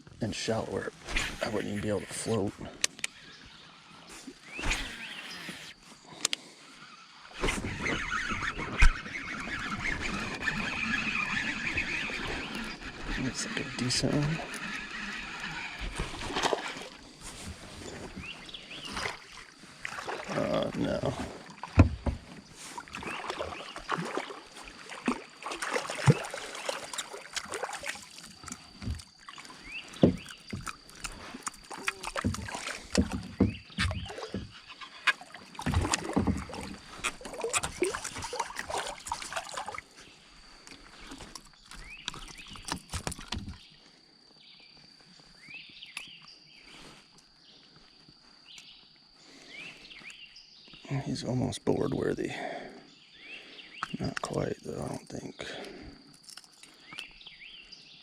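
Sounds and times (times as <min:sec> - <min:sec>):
fish splashing: 0:07.2 - 0:17.6, 0:22.6 - 0:40.0
faint chirps: 0:39.6 - 0:58.0.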